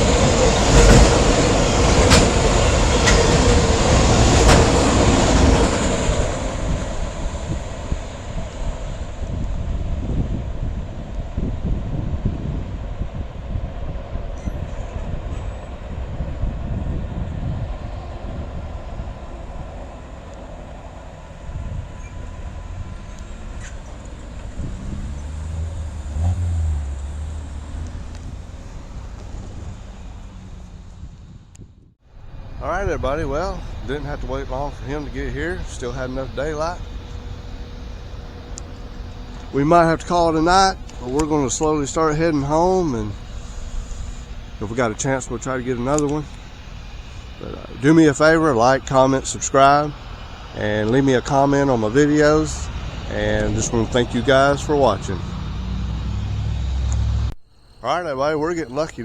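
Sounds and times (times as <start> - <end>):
wheel clicks over rail joints: 0.0 - 7.0
passing vehicle rumble: 0.0 - 59.0
train cars rolling past: 0.0 - 59.0.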